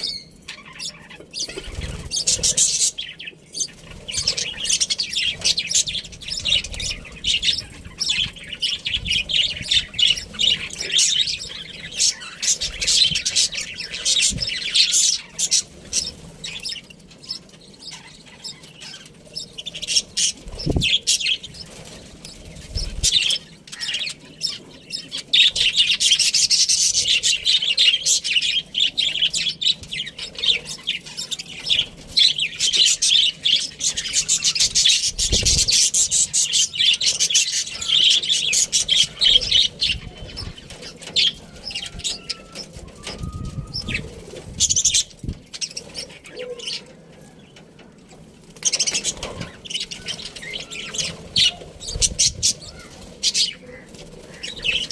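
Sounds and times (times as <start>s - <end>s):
budgerigar chirping and chattering: 0.0s - 21.5s.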